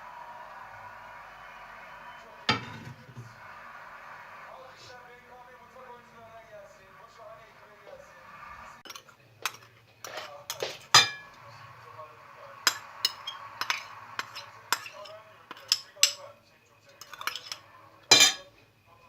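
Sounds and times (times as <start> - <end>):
cutlery clinking against crockery: 2.5 - 3.2, 8.8 - 11.4, 12.7 - 18.6.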